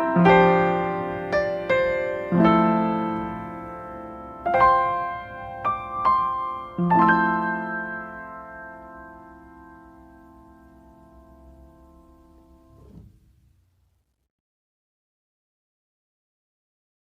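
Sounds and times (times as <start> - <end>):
slow soft piano music: 0.0 - 13.5.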